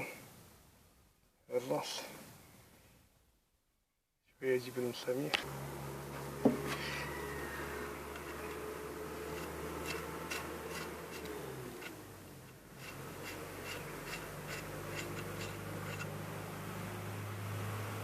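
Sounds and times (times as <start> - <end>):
steady low hum: 4.8 - 18.0.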